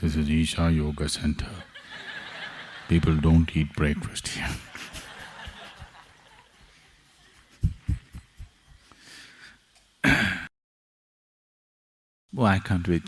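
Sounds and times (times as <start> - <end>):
audience laughter: 1.6 - 3.3, 4.6 - 8.1
soft low thumps: 7.5 - 8.8.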